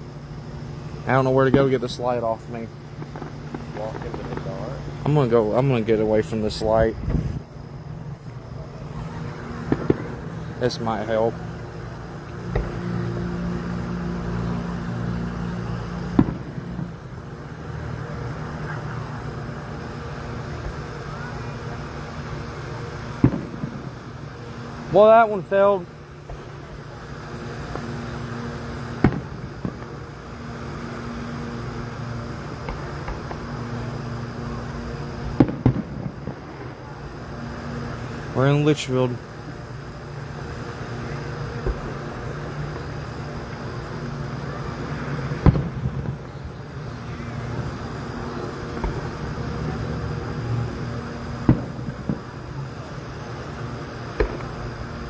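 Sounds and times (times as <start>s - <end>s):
steady low hum: 0.0s - 55.0s
steady low rumble: 0.0s - 55.0s
distant fireworks bangs: 0.7s - 55.0s
fireworks shells bursting: 1.0s - 13.1s, 41.3s - 55.0s.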